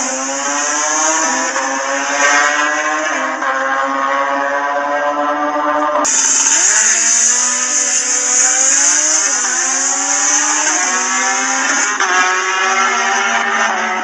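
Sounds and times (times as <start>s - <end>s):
racing engine revving: 0.0s - 14.0s.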